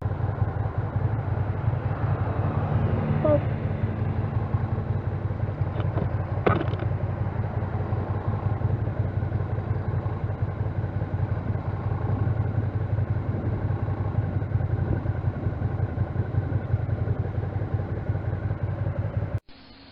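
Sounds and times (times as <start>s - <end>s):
road and wind noise: 0.0s - 19.4s
motorcycle engine rumble: 0.0s - 19.9s
sharp clatter: 5.7s - 7.0s.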